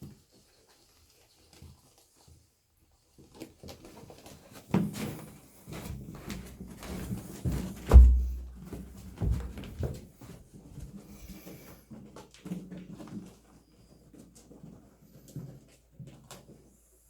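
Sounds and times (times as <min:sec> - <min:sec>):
animals thumping on stairs: 0:07.5 - 0:10.0.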